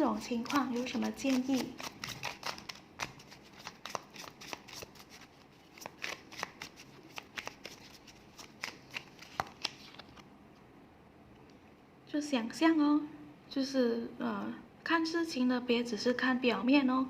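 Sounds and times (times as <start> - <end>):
cards being shuffled: 0.2 - 10.2.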